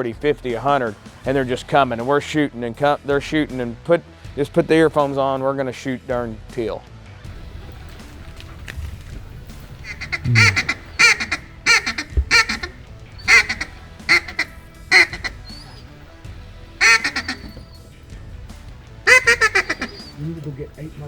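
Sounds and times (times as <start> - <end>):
duck quacking: 9.8 - 15.9, 16.8 - 17.8, 19.1 - 20.2.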